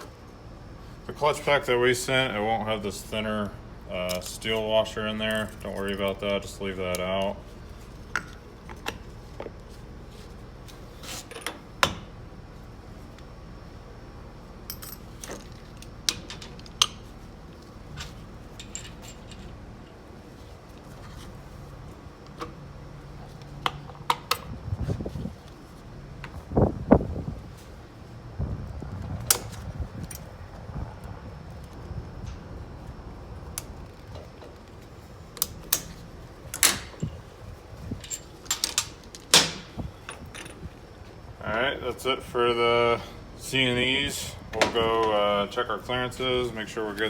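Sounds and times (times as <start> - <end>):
metal clutch plates clinking: 18.0 - 19.6, 38.0 - 40.6
metal parts clicking and clacking: 18.0 - 19.6, 38.0 - 40.6.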